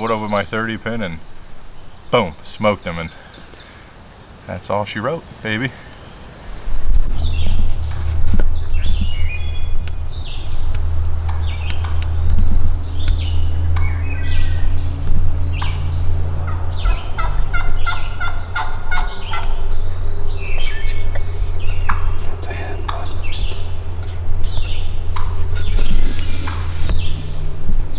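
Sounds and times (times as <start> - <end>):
songbirds chirping: 0.0 - 27.9
turkey gobbling: 5.1 - 27.9
steady low rumble: 6.5 - 27.9.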